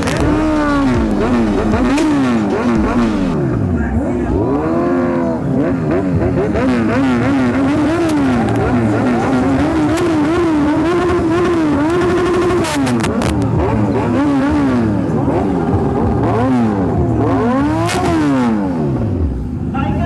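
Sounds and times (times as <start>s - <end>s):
sharp cracks: 0.0s - 3.8s
motorcycle engines revving: 0.0s - 20.0s.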